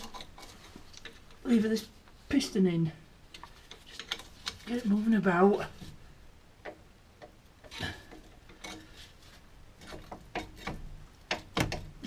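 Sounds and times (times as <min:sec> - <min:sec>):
metallic clicks and knocks of tool: 0:09.8 - 0:12.0.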